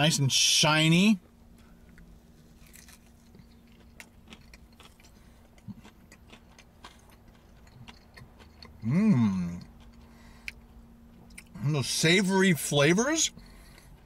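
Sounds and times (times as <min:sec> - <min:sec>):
wet chewing clicks: 0:02.6 - 0:08.8
person humming mmm: 0:08.8 - 0:09.7.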